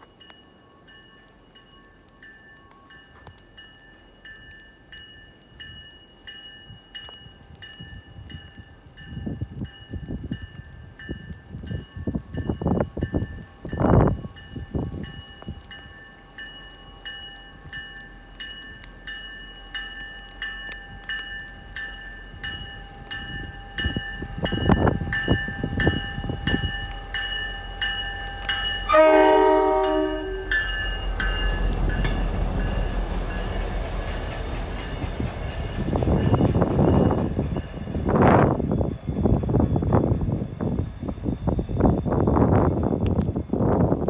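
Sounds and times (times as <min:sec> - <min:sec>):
train bell ringing: 0:00.0 - 0:40.3
diesel locomotives rumbling past: 0:00.1 - 0:44.0
locomotive horn blast: 0:28.8 - 0:31.1.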